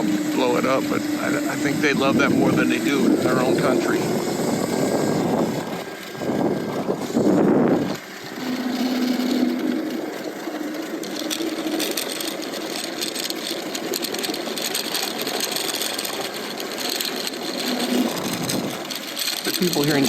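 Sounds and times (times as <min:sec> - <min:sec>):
electric motor whining: 0:00.0 - 0:20.0.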